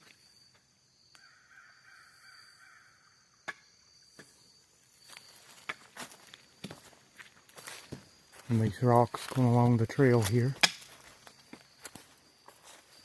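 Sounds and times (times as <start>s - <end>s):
footsteps on trail: 5.0s - 13.0s.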